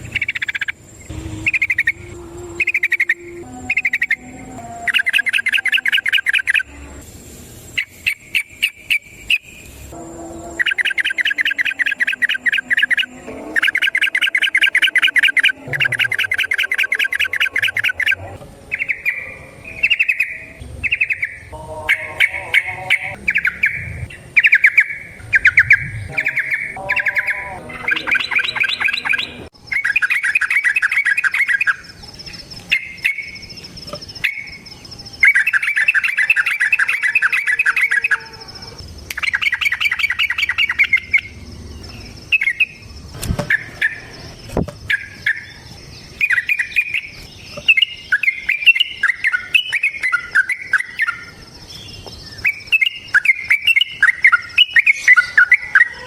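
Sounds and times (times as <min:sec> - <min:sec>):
bird singing chattering phrases: 0:00.0 - 0:07.0, 0:07.6 - 0:09.9, 0:10.5 - 0:56.0
faint steady high tone: 0:00.0 - 0:08.0, 0:08.8 - 0:43.0.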